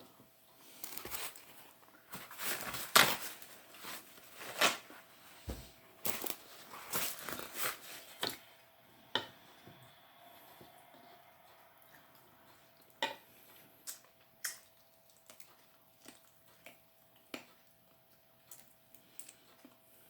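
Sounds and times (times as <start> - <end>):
crunchy chewing: 9.9 - 20.0.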